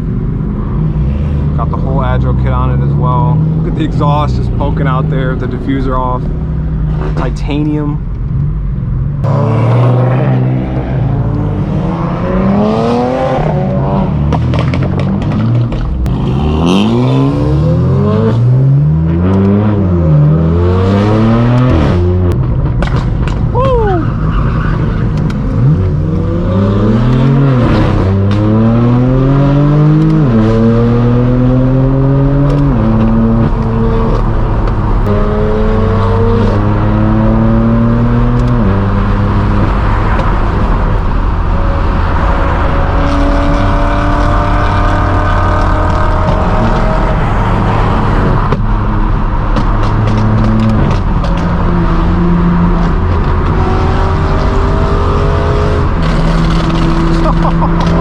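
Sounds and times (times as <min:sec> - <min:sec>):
car engine accelerating with upshifts: 0:00.0 - 0:58.0
exhaust crackles and pops: 0:14.2 - 0:16.1, 0:21.5 - 0:23.8, 0:32.4 - 0:35.2, 0:39.6 - 0:41.6, 0:48.1 - 0:51.6, 0:55.8 - 0:58.0.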